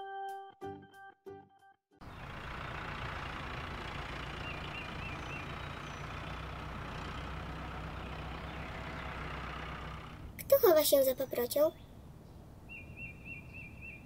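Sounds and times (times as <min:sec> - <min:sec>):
car engine running: 0:02.0 - 0:10.4.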